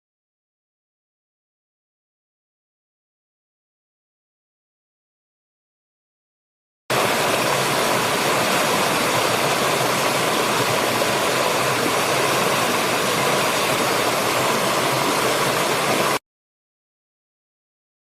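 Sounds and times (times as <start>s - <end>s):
steady rushing noise: 6.9s - 16.2s.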